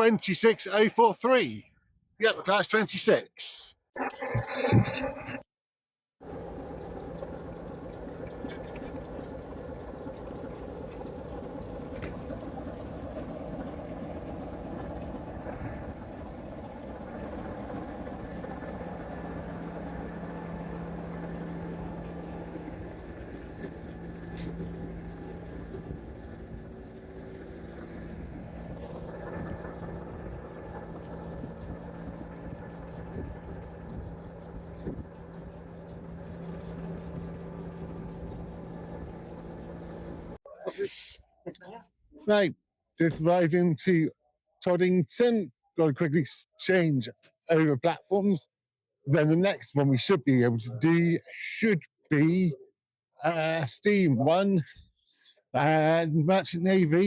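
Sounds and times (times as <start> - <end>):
low locomotive hum: 6.2 - 40.4.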